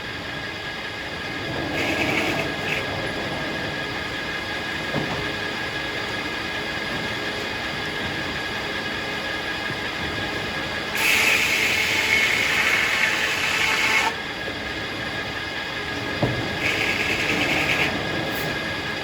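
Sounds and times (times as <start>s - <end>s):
circular sawmill sawing: 1.8s - 2.8s, 10.9s - 14.2s, 16.6s - 18.0s.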